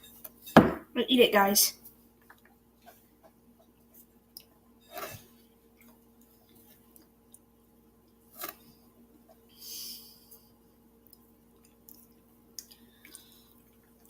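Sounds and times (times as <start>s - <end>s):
wet mouth clicks and chewing: 11.0s - 14.0s.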